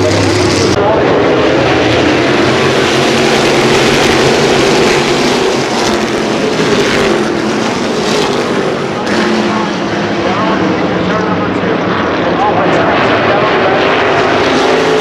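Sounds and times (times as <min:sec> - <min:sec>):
race car engines at speed: 0:00.0 - 0:15.0.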